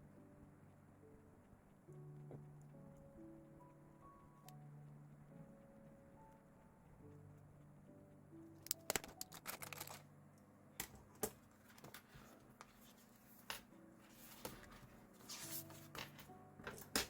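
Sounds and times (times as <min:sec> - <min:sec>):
paper rustling: 0:11.6 - 0:17.0.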